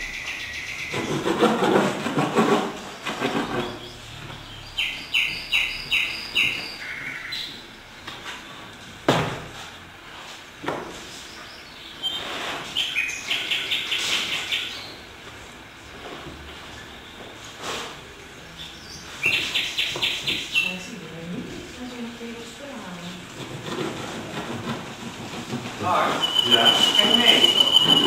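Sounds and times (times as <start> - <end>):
bird chirping: 0.0 - 1.3, 3.3 - 7.7, 11.2 - 15.1, 18.5 - 21.0, 26.0 - 28.0.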